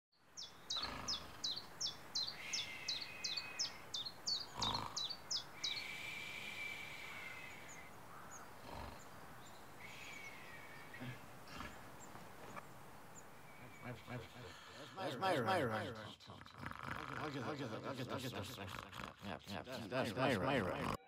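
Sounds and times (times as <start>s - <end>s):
bird chirping high: 0.2s - 15.3s.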